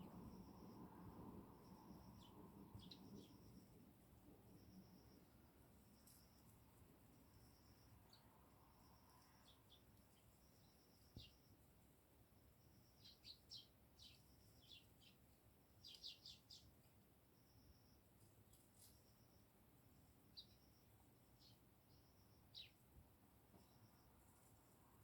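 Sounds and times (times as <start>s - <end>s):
sparrows chirping: 1.6s - 3.6s, 9.2s - 11.5s, 12.7s - 16.8s, 20.3s - 22.8s.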